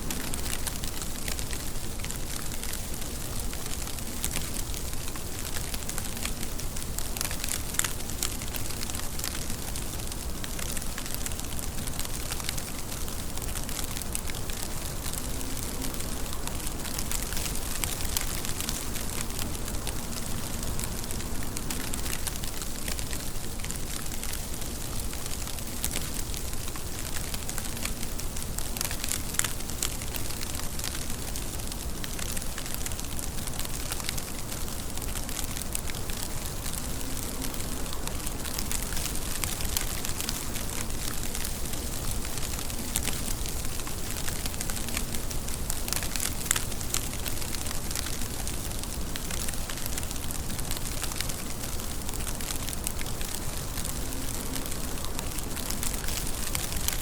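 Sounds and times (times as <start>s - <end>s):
sharp raindrop ticks: 0.0s - 57.0s
steady rain: 0.0s - 57.0s.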